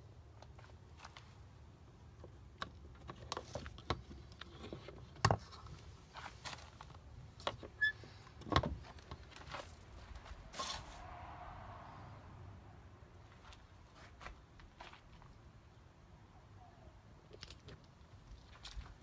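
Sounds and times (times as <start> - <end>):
high squeak: 7.8 - 8.0.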